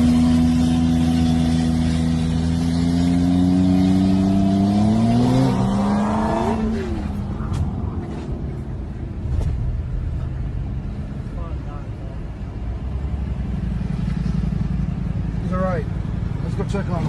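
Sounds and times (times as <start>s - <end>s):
motorcycle engine accelerating: 0.0s - 8.2s.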